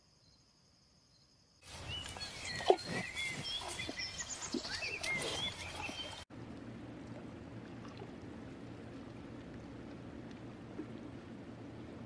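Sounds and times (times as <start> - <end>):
small birds chirping: 1.7 - 6.2.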